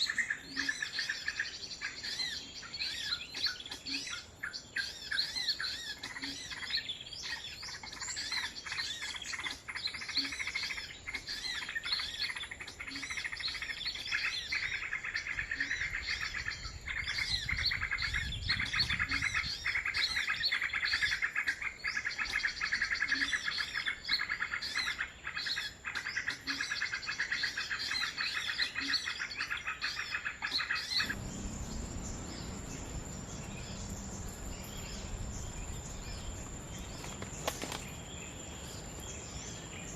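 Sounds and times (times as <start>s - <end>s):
small birds twittering: 0.0s - 39.9s
insect buzz: 31.0s - 39.9s.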